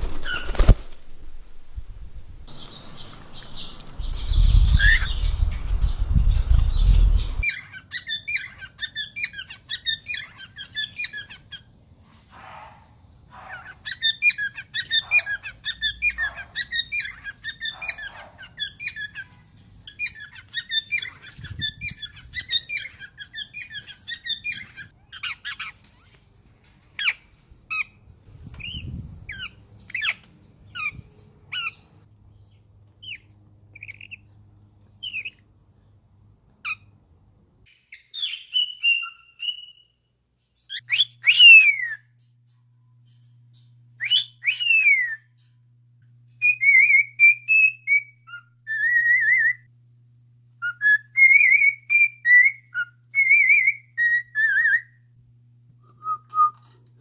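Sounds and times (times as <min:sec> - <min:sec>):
low rumbling noise: 0:01.0 - 0:07.4
birds chirping: 0:01.8 - 0:11.8, 0:12.4 - 0:37.0.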